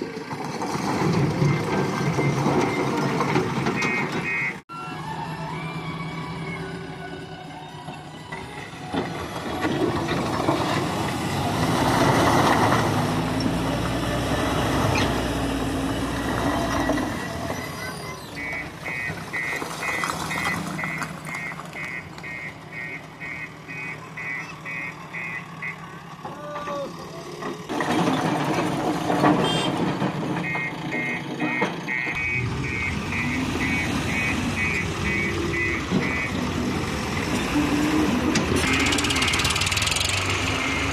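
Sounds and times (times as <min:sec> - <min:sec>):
heavy diesel machinery running: 0:00.0 - 0:40.9
reversing alarm beeping: 0:03.7 - 0:04.6, 0:17.8 - 0:25.8, 0:30.4 - 0:36.6.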